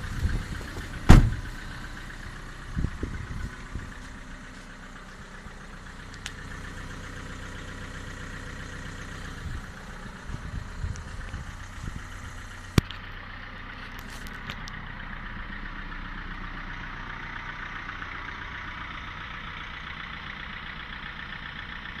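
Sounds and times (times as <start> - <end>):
diesel engine idling: 0.0 - 22.0
faint clicks: 6.1 - 6.4.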